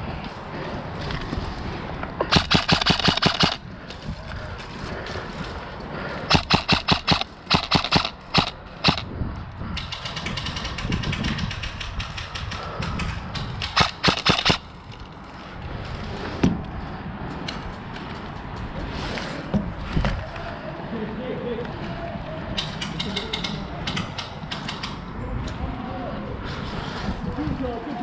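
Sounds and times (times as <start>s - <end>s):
airsoft guns firing: 2.3s - 3.6s, 6.3s - 9.1s, 13.6s - 14.7s
rattle of continuous fire: 5.0s - 16.0s.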